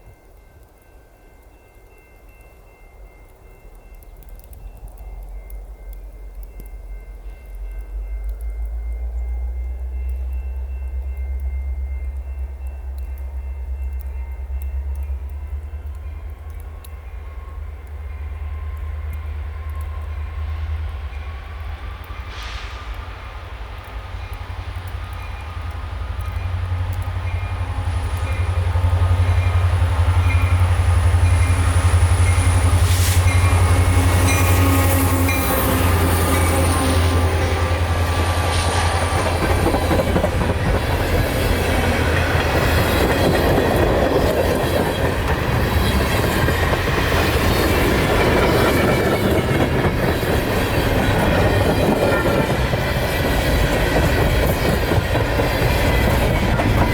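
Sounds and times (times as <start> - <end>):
diesel locomotive engine drone: 0.1 - 56.9
freight cars clickety-clack: 24.0 - 56.9.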